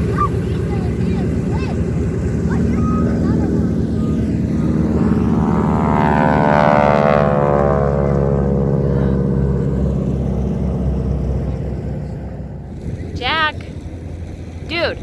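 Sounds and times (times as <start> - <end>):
propeller airplane flying past: 0.0 - 15.0.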